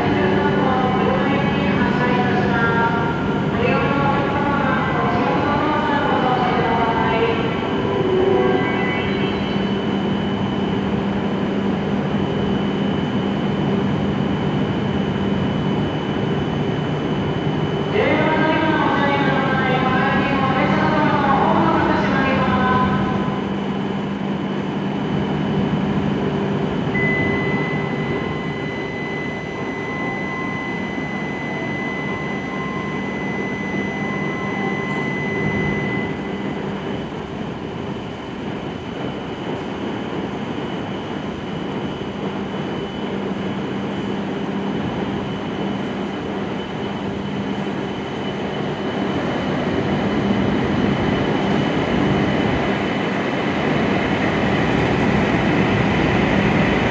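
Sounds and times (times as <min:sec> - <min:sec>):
train hum: 0:00.0 - 0:56.9
steady high tone: 0:03.8 - 0:10.7, 0:26.9 - 0:37.2.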